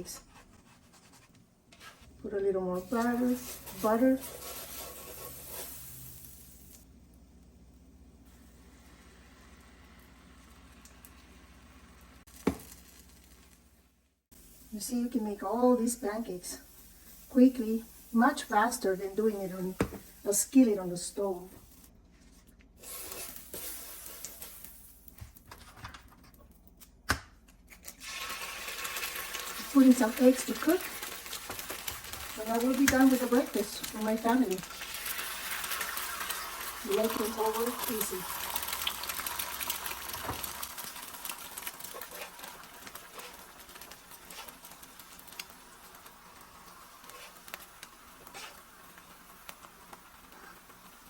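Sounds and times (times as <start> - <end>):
pancakes sizzling on a griddle: 2.8 - 6.8, 15.9 - 18.8, 22.8 - 25.1, 28.1 - 51.0
small pops and crackles: 31.1 - 34.8, 38.6 - 50.9.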